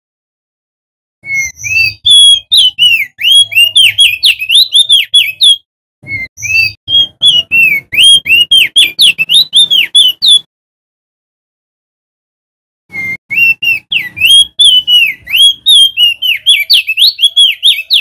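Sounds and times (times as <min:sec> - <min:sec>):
bird singing whistled notes: 0:01.2 - 0:10.5, 0:12.9 - 0:18.0.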